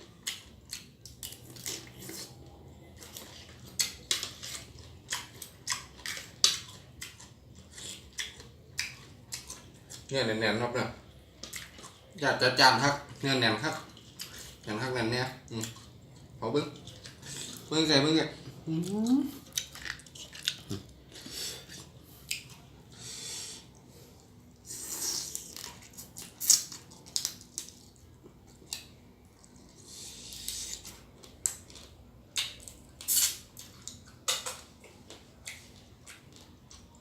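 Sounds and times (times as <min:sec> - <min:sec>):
soft chewing: 0:00.0 - 0:37.0
crab shell cracking and crunching: 0:19.5 - 0:21.0, 0:25.1 - 0:28.1.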